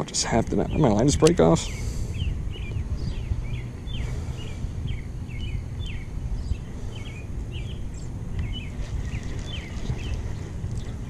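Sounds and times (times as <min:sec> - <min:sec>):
wind rumble on microphone: 0:00.0 - 0:11.0
small birds chirping: 0:00.2 - 0:11.0.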